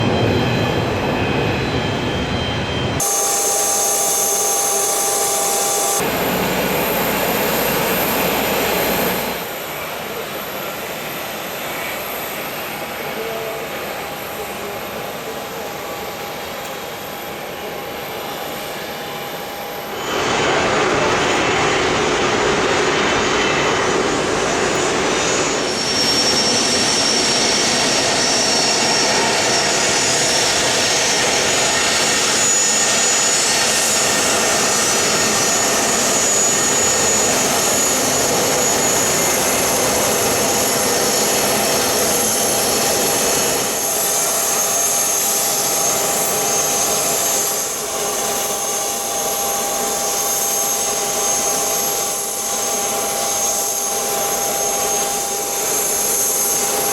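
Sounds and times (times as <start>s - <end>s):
jet engines rushing and whining: 0.0s - 56.9s.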